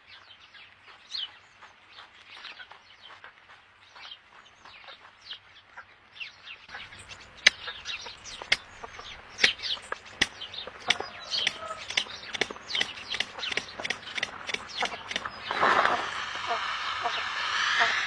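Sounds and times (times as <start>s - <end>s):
sharp clicks: 6.7s - 16.1s
birds chirping: 6.7s - 17.2s.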